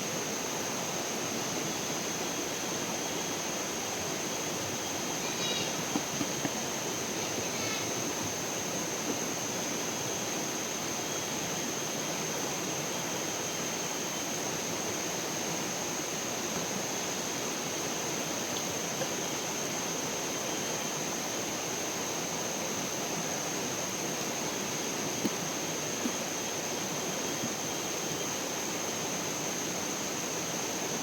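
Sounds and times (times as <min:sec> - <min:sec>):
thin high whine: 0:04.4 - 0:10.2.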